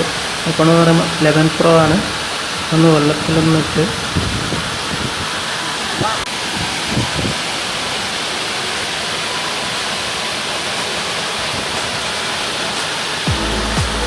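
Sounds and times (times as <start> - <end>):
waterfall rushing: 0.0 - 14.0
background music: 10.8 - 14.0.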